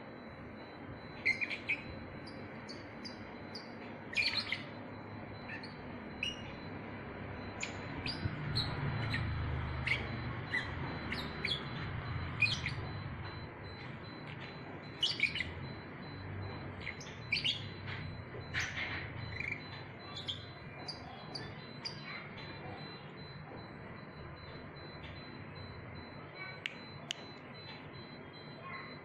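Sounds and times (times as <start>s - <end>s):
lovebird chirping: 0.2s - 23.4s.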